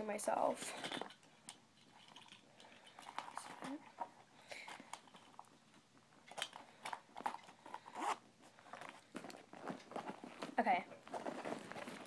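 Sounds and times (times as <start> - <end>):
rustling in a handbag: 7.1 - 12.0.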